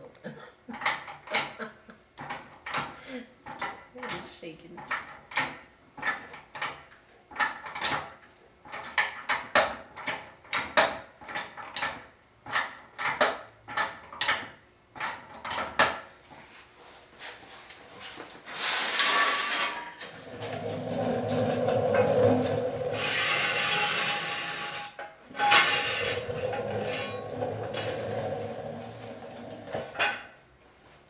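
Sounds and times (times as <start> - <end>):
rough scraping noise: 18.0 - 30.3.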